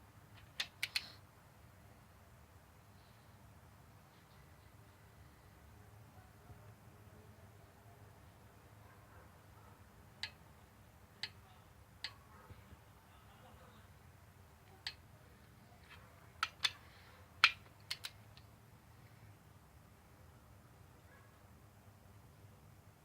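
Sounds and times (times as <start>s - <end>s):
torque wrench clicks: 0.4s - 1.1s.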